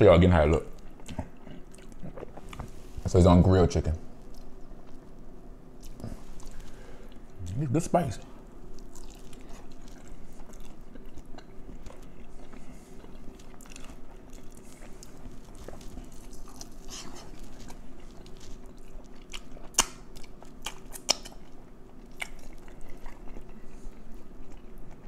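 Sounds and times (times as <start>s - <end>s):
wet chewing: 0.5s - 2.8s, 4.2s - 5.2s, 8.7s - 25.0s
mouth clicks and smacks: 20.6s - 21.4s.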